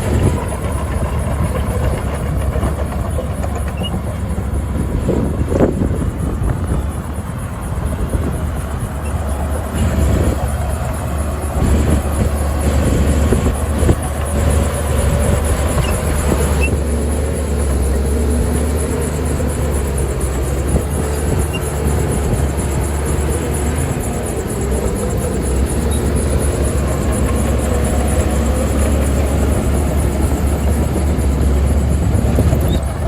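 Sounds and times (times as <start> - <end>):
diesel machinery rumbling: 0.0 - 33.0.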